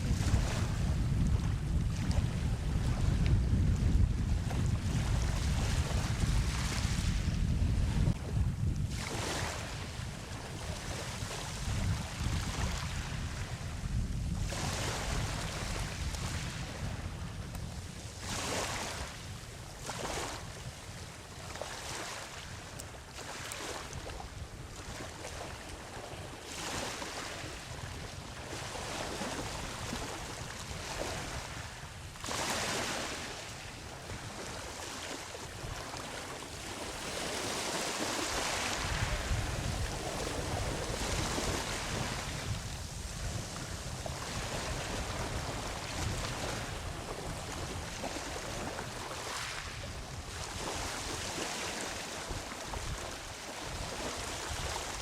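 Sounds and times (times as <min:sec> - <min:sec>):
ocean waves breaking on beach: 0:00.0 - 0:55.0
wind rumble on microphone: 0:00.0 - 0:55.0.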